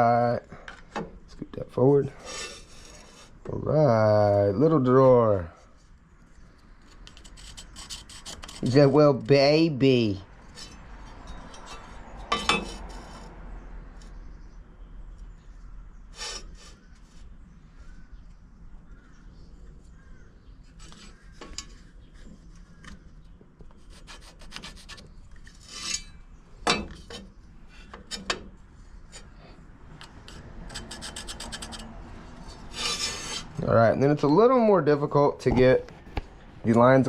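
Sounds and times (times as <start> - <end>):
pencil scratching on wood: 7.0 - 8.9, 23.7 - 25.9, 30.2 - 33.6.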